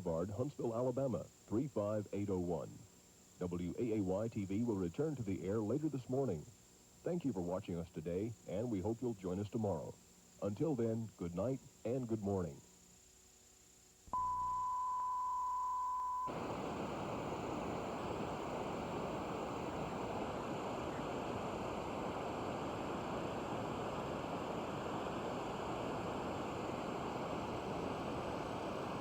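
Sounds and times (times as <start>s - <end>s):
television static hiss: 0.0s - 29.0s
steady test tone: 14.1s - 20.2s.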